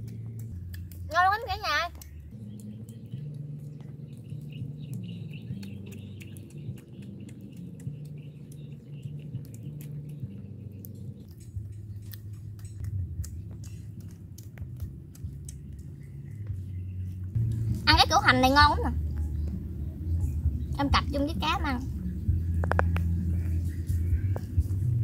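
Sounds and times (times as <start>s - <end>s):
chewing with wet mouth clicks: 0.0s - 1.2s, 1.9s - 17.8s, 22.2s - 25.0s
faint bird chirps: 2.0s - 11.3s.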